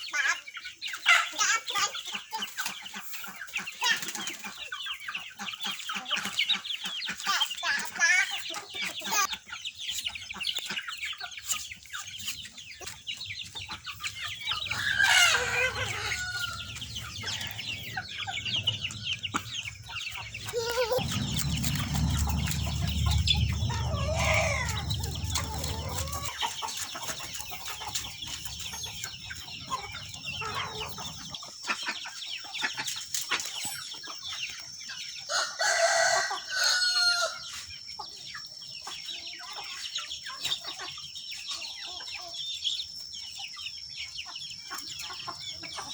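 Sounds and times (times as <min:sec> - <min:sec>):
chickens clucking: 0:00.0 - 0:45.9
rooster crowing: 0:14.5 - 0:19.6, 0:20.4 - 0:26.5, 0:35.3 - 0:37.5
low rumble: 0:15.4 - 0:26.5.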